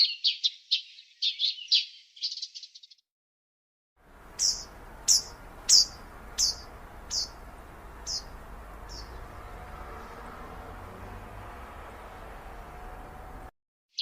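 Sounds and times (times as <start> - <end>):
songbird sharp chirps: 0.0 - 3.0, 4.2 - 11.7
steady outdoor hiss: 4.0 - 13.5.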